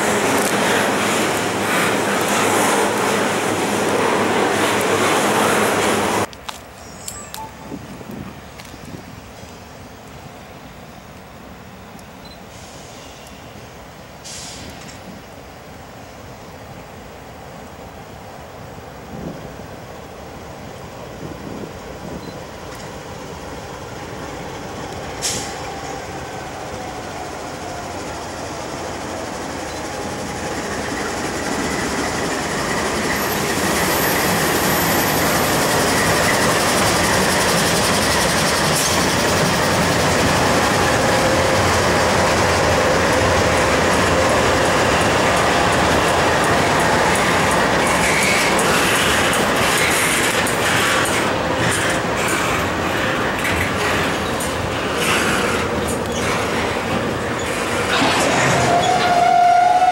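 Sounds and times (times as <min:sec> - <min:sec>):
diesel locomotives passing: 0:00.0 - 0:59.9
freight cars rolling past: 0:21.2 - 0:59.9.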